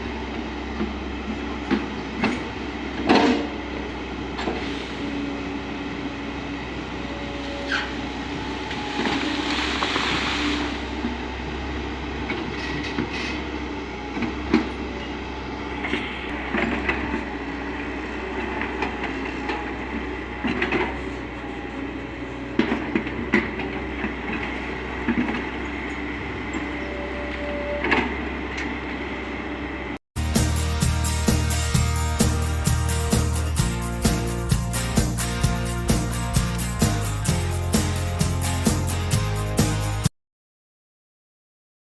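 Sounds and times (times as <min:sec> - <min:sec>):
diesel engine droning: 0:00.0 - 0:40.1
metallic clanks and squeaks: 0:07.4 - 0:08.0, 0:12.3 - 0:13.5, 0:22.7 - 0:28.8.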